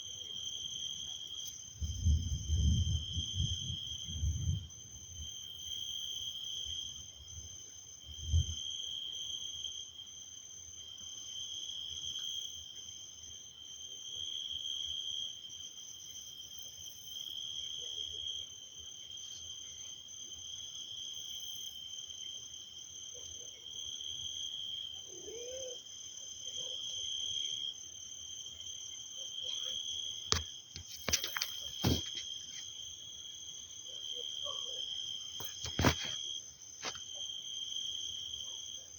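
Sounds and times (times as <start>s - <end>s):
night insect chorus: 0.0s - 38.9s.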